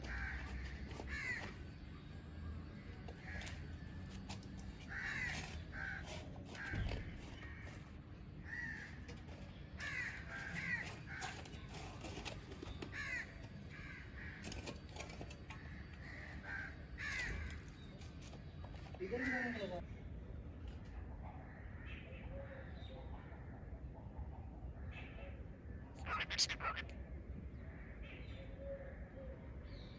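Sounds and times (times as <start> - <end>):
parrots calling: 26.0 - 27.0.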